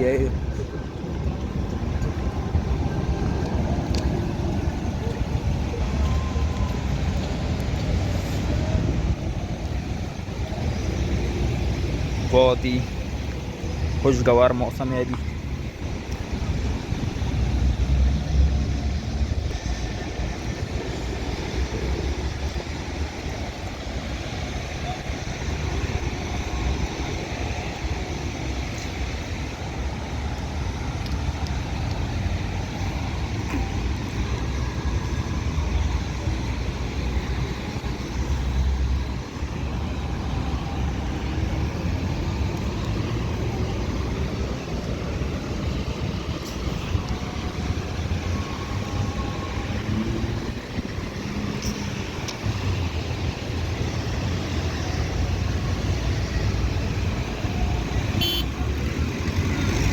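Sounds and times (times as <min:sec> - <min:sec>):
road traffic: 0:00.0 - 0:59.9
wind rumble on microphone: 0:00.3 - 0:12.2.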